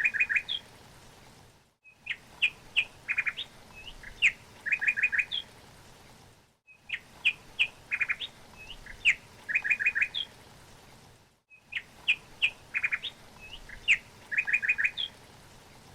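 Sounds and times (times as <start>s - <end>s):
songbirds chirping: 0.0s - 0.7s, 1.8s - 5.6s, 6.7s - 10.6s, 11.5s - 15.9s.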